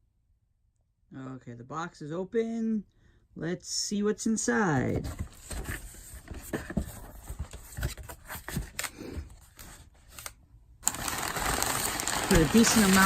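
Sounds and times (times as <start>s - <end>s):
packing paper rustling: 5.0s - 13.0s.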